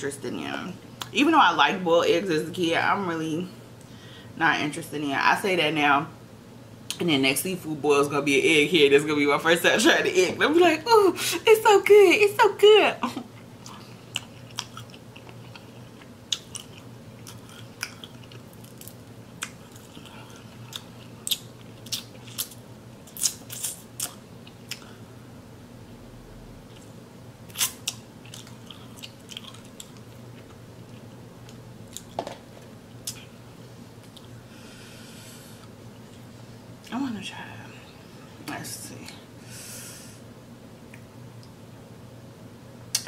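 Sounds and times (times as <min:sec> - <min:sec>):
steady low hum: 0:00.0 - 0:43.0
person chewing: 0:13.4 - 0:24.9, 0:27.5 - 0:32.2
wet mouth clicks and crunches: 0:13.6 - 0:24.8.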